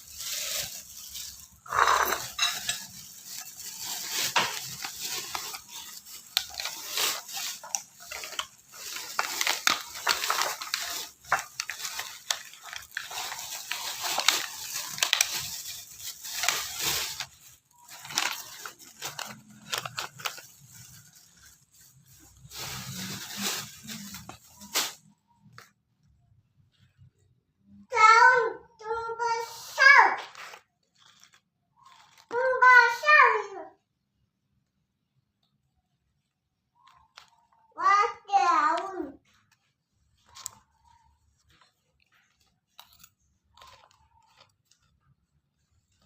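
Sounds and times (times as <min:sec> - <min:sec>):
kitchen items clattering: 0:00.0 - 0:25.1.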